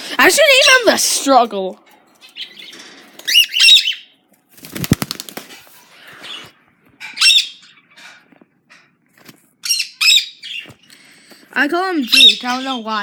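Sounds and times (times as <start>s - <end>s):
bird wings beating: 4.5s - 5.7s.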